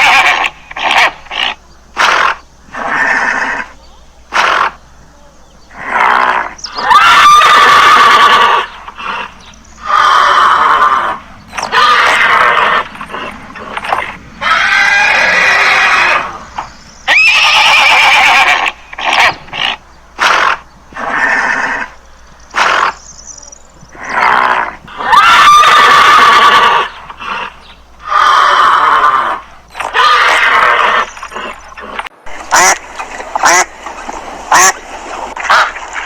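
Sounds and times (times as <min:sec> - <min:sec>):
horse neighing: 0:00.0 - 0:04.8, 0:05.7 - 0:23.0, 0:23.9 - 0:32.8.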